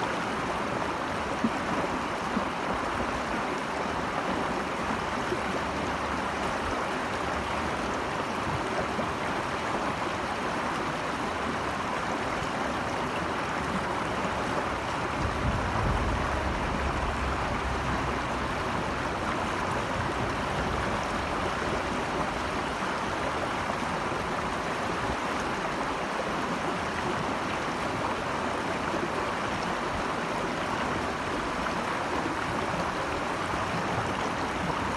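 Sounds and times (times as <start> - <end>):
stream water over rocks: 0.0 - 34.9
low rumble: 14.6 - 22.2.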